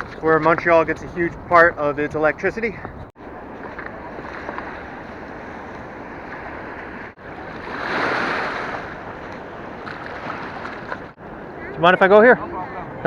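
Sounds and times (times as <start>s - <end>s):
fast water rushing: 3.5s - 11.7s.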